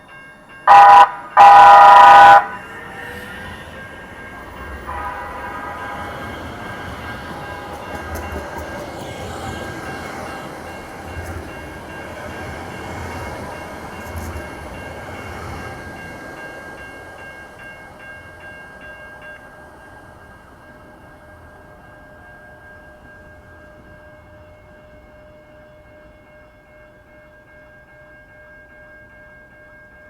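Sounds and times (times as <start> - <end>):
high whine of train: 0.0 - 30.0
light rail train running: 0.0 - 30.0
low thumps of train: 2.6 - 16.8.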